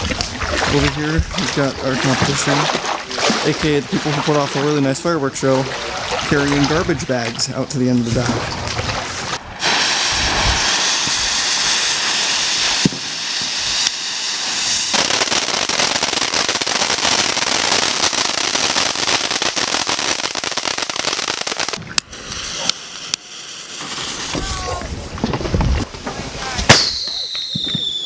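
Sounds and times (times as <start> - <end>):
fireworks crackling: 0.0 - 4.8, 7.5 - 28.0
loud hiss: 9.4 - 25.0.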